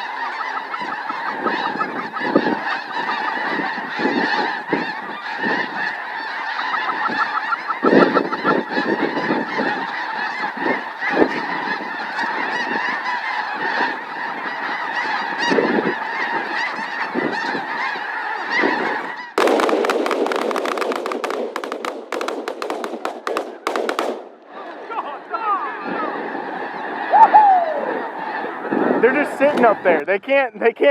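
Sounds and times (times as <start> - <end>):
geese honking: 0.0 - 30.9
loud rapid crackling noise: 19.4 - 24.2.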